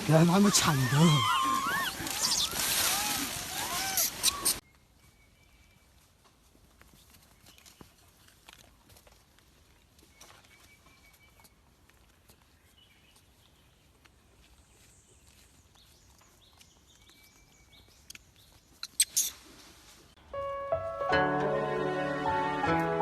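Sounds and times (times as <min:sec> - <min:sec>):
music: 0:20.2 - 0:23.0.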